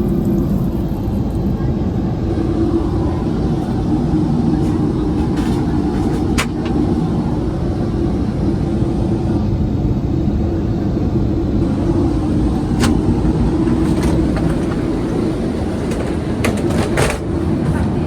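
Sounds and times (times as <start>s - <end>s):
airplane cabin rumble: 0.0s - 18.0s
steady hum: 0.0s - 18.0s
faint cabin clicks: 4.6s - 6.8s, 12.5s - 17.9s.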